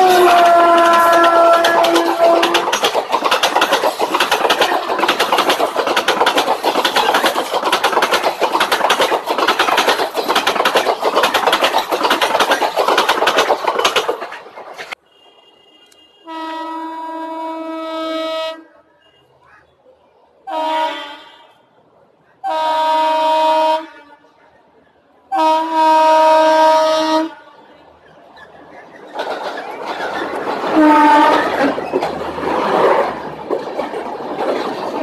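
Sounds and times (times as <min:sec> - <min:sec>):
locomotive horn blasts: 0:00.0 - 0:02.8, 0:15.0 - 0:19.4, 0:20.5 - 0:21.6, 0:22.4 - 0:24.4, 0:25.3 - 0:27.6, 0:30.8 - 0:31.5
train wheels clattering over rail joints: 0:00.0 - 0:15.0, 0:28.0 - 0:35.0.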